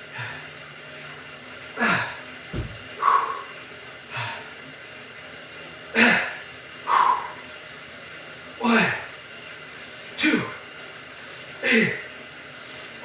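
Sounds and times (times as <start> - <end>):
man breathing hard: 1.8 - 4.6.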